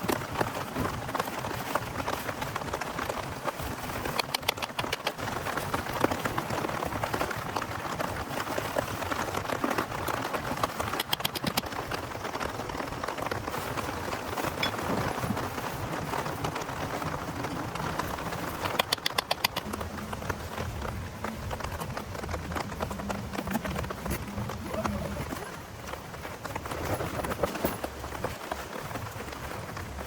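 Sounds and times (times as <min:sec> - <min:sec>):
steady rain falling: 0:00.0 - 0:30.0
sharp clicks: 0:04.0 - 0:05.2, 0:10.8 - 0:12.0, 0:18.3 - 0:20.3.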